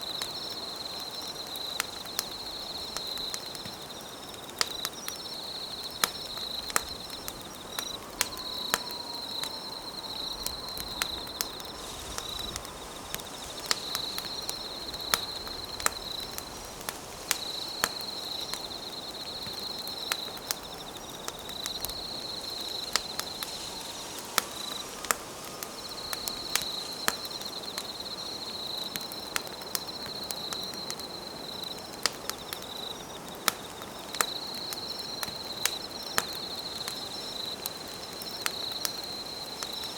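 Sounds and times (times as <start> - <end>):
campfire crackling and popping: 0.0 - 39.9
insect trilling: 5.0 - 29.2.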